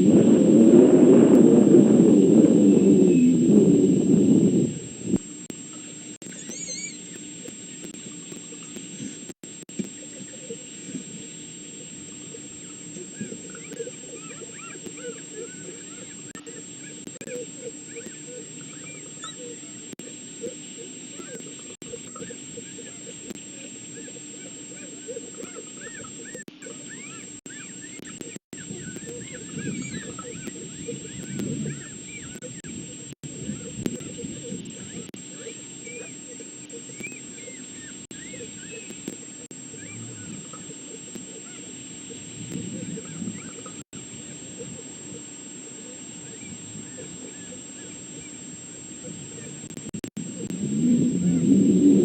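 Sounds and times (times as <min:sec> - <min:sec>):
high electronic whine: 0:00.0 - 0:52.0
outdoor background noise: 0:00.0 - 0:52.0
faint short chirping calls: 0:05.6 - 0:50.6
wolf pups squeaking and whining: 0:06.2 - 0:07.5, 0:12.2 - 0:19.8, 0:20.4 - 0:32.5, 0:33.5 - 0:43.8, 0:46.2 - 0:48.4.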